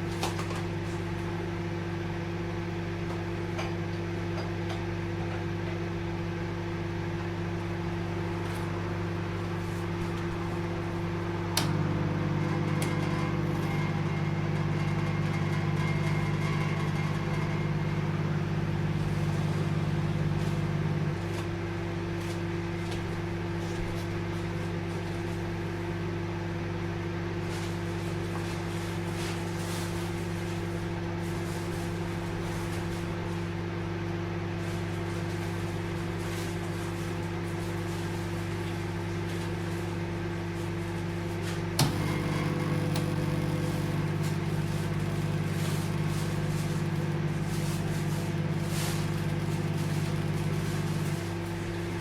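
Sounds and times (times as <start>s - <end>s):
microwave oven humming: 0.0s - 52.0s
microwave click: 11.5s - 13.8s, 41.8s - 47.3s.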